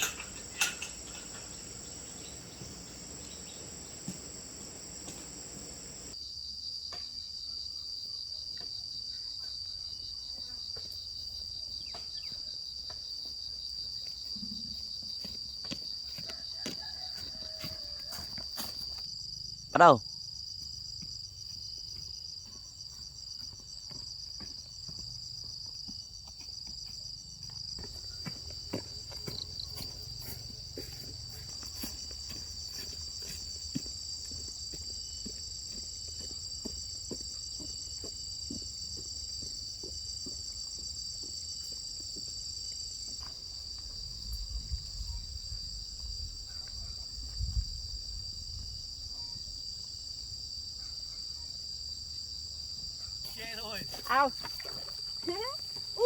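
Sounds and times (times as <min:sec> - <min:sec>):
insects trilling: 0:00.0 - 0:06.2, 0:09.0 - 0:56.0
light taps or steps: 0:00.8 - 0:06.1.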